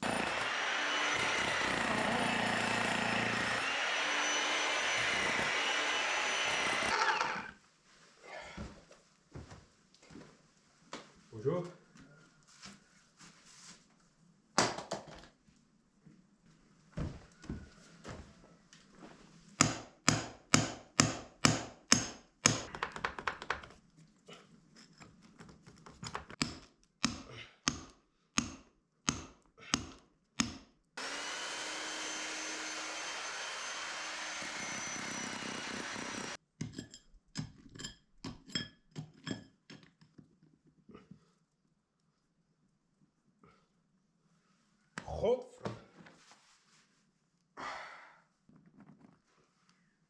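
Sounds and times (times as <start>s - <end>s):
power tool running: 0.0s - 7.6s, 31.0s - 36.4s.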